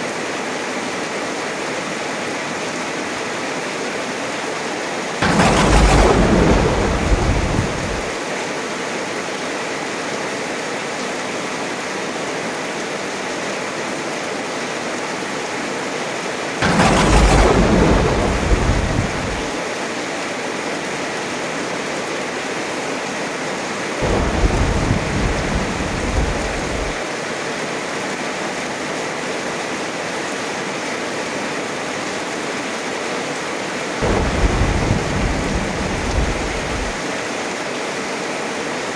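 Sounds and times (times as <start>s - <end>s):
heavy rain pouring: 5.1s - 8.5s, 16.6s - 20.0s, 24.0s - 27.2s, 34.0s - 37.4s
thunder cracking and rumbling: 5.2s - 8.3s, 16.6s - 19.7s, 24.0s - 27.0s, 34.0s - 37.2s.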